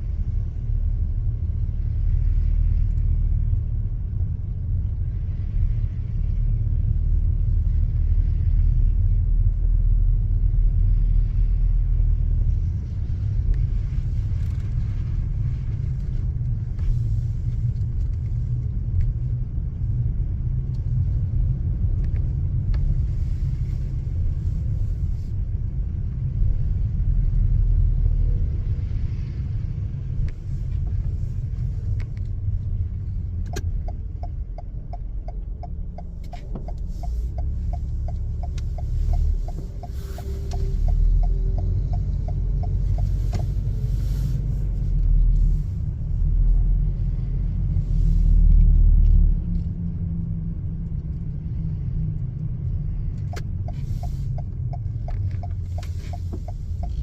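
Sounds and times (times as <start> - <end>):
car engine and road rumble: 0.0 - 57.0
faint ticks: 33.3 - 45.4, 52.4 - 57.0.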